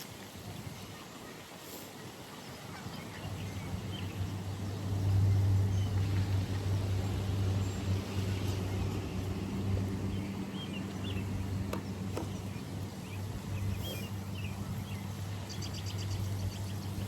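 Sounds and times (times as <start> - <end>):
low engine hum: 3.3 - 17.0
bird chirps: 10.1 - 14.6.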